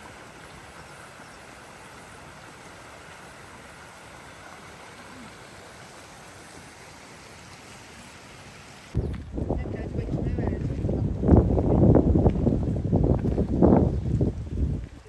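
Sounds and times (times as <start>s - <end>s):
stream water rushing: 0.0s - 9.0s.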